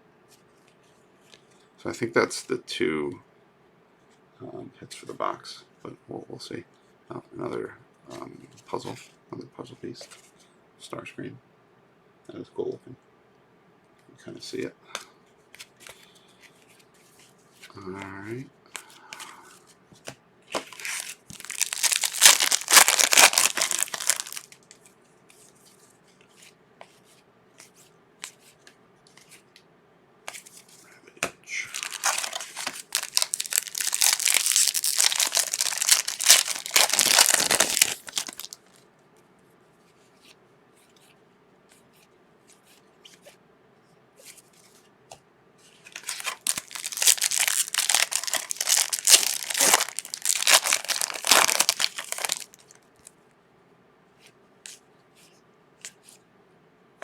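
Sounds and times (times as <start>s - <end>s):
wrapper crackling torn open: 20.7s - 24.7s, 31.7s - 38.8s, 46.0s - 52.8s.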